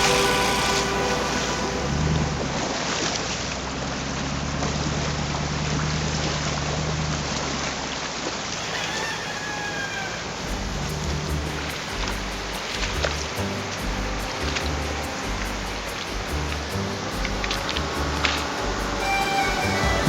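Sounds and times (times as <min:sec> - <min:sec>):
high chirp-like tone: 0:00.0 - 0:03.2, 0:13.8 - 0:20.0
rush of water: 0:00.0 - 0:20.0
engine running low: 0:10.4 - 0:20.0.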